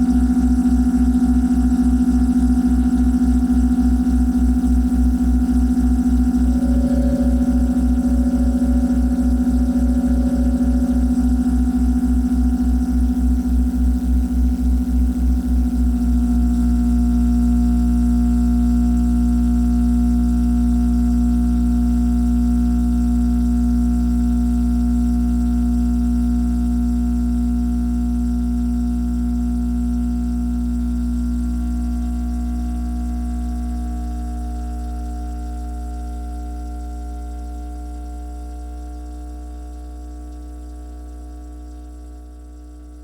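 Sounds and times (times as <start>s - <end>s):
processed low drone: 0.0s - 15.9s.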